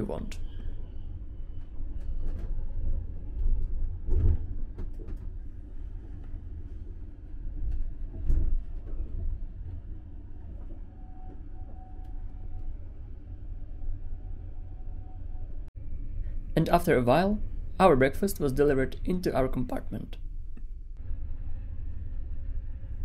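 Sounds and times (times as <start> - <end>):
train rumbling on rails: 0.0 - 16.5.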